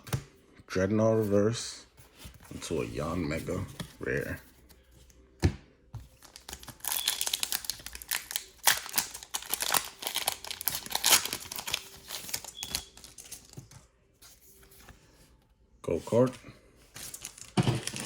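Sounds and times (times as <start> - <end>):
foil wrapper crinkling and tearing: 6.2 - 13.6.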